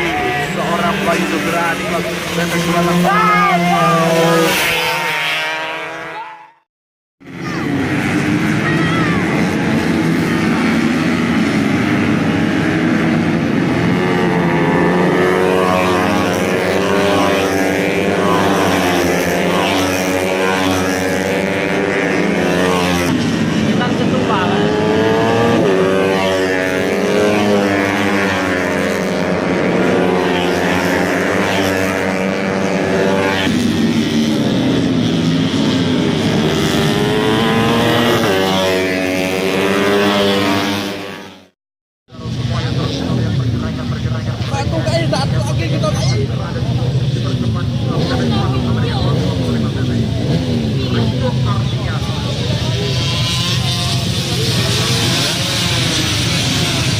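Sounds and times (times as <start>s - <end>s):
racing motorcycle engines revving: 0.0s - 56.9s.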